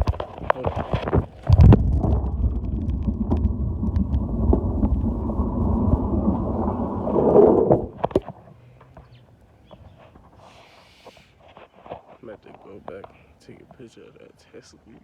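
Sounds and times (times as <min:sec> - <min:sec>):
loud low rumbling: 0:01.5 - 0:08.0.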